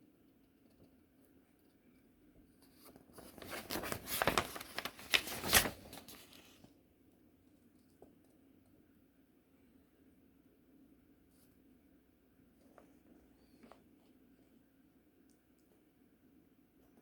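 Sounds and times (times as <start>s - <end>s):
packaging crinkling and tearing: 3.2s - 6.6s.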